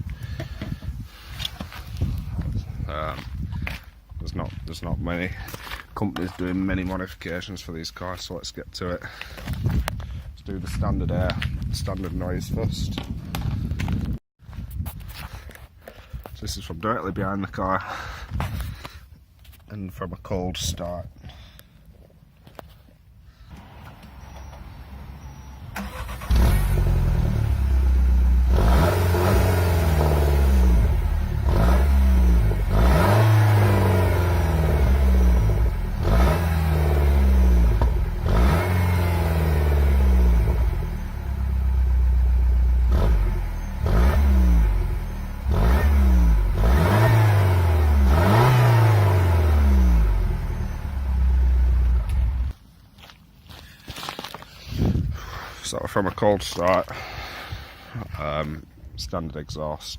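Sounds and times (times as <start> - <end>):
car engine starting and revving: 23.5 - 52.5
engine revving: 23.5 - 52.5.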